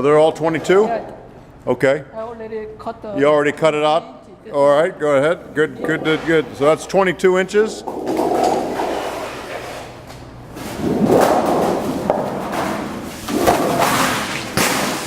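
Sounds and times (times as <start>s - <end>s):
sheet metal folding machine rushing: 10.6s - 15.0s.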